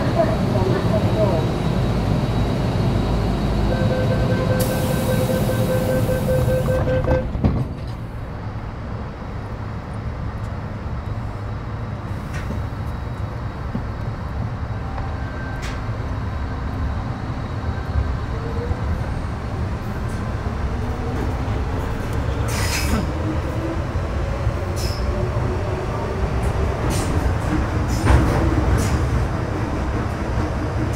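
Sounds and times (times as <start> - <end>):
wheels rumbling on rail: 0.0 - 30.9.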